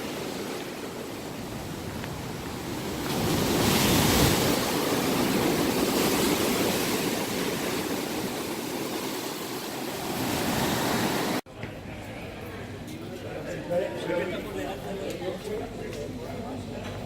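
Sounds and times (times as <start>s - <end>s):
ocean waves breaking: 0.0s - 11.4s.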